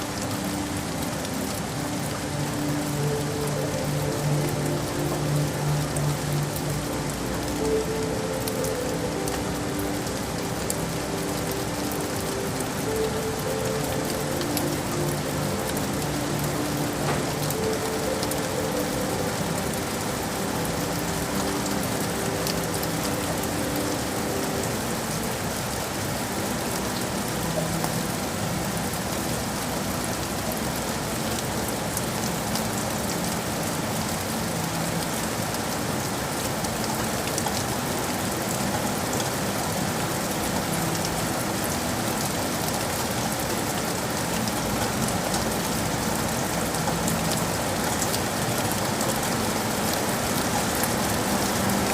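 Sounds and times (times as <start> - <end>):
heavy rain on city surfaces: 0.0 - 51.9.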